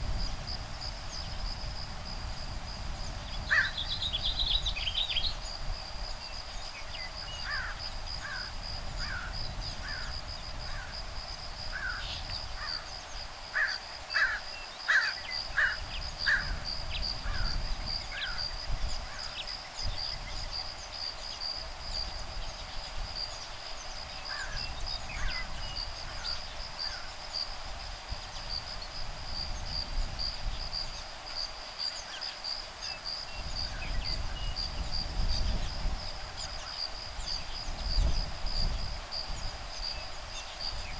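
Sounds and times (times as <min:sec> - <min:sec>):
wind rumble on microphone: 0:00.0 - 0:14.4, 0:15.2 - 0:31.6, 0:32.5 - 0:40.9
high insect trill: 0:00.0 - 0:40.9.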